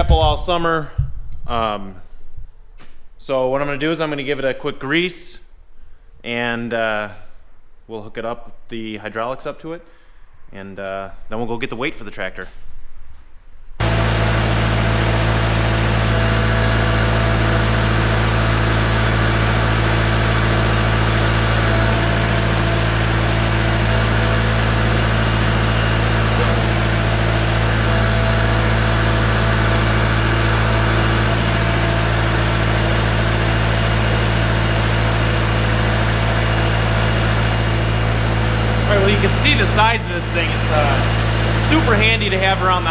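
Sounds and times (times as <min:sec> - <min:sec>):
tractor diesel engine idling: 0:13.8 - 0:42.9.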